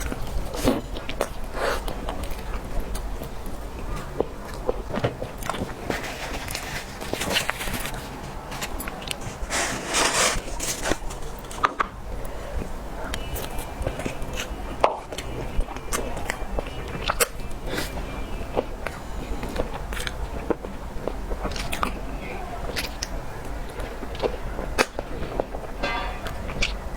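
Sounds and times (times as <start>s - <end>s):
rustling: 5.6s - 11.8s
chewing with mouth clicks: 13.1s - 22.0s, 22.6s - 25.0s.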